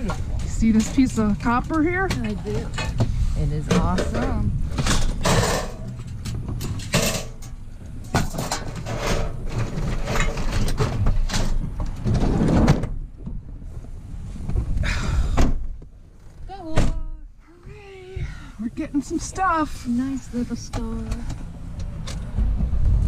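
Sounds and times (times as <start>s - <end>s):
scrap metal knocking and clattering: 0.0s - 12.9s
steady low rumble: 0.0s - 23.0s.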